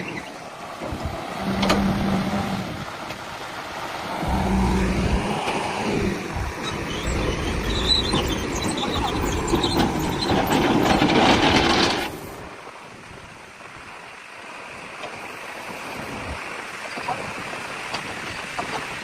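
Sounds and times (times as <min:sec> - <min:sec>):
vehicle engine running: 0:04.1 - 0:11.2
clatter: 0:07.8 - 0:12.4.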